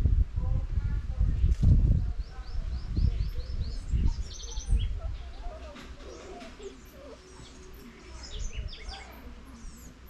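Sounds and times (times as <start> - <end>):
small birds chirping: 1.1 - 10.0
wavering bird calls: 2.2 - 10.0.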